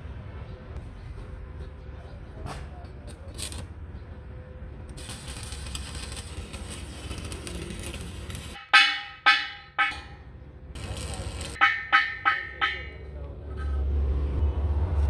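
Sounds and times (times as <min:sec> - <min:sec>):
ringing metal strikes: 0:05.3 - 0:10.2, 0:10.8 - 0:13.1.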